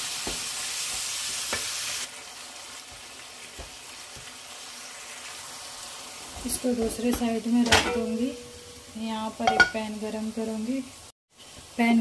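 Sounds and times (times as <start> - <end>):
meat sizzling in hot oil: 0.0 - 12.0
spatula scraping and knocking pan: 9.4 - 9.9.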